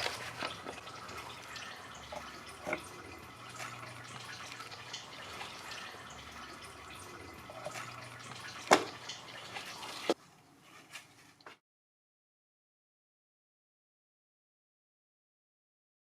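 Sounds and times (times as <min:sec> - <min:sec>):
oil splashing into drain pan: 0:00.0 - 0:10.2.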